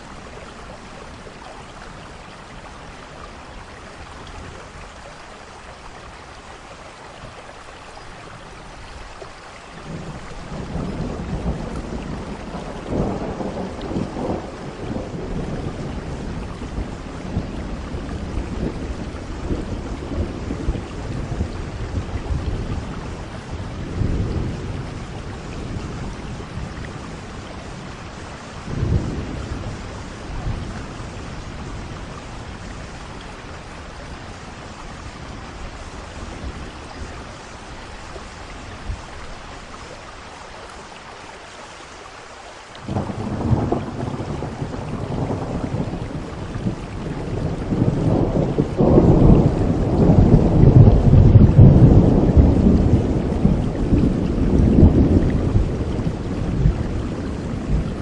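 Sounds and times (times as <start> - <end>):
steady rain falling: 0.0 - 58.0
rolling thunder: 9.8 - 39.1, 42.8 - 58.0.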